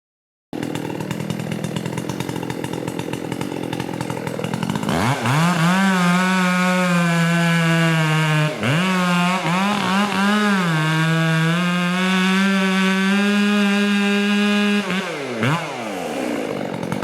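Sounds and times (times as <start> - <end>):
chainsaw idling and revving: 0.6 - 17.0.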